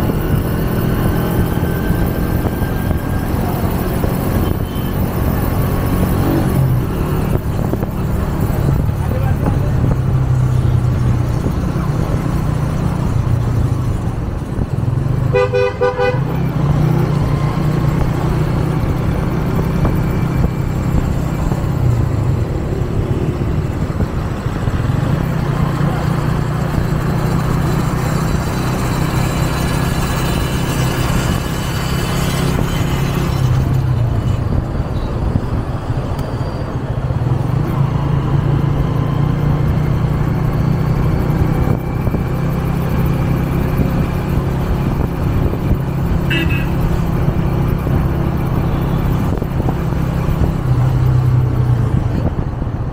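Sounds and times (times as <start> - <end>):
motorcycle engine running: 0.0 - 35.6, 37.3 - 52.9
vehicle horn pulsing honk: 4.4 - 5.1, 15.3 - 16.4, 46.2 - 46.8.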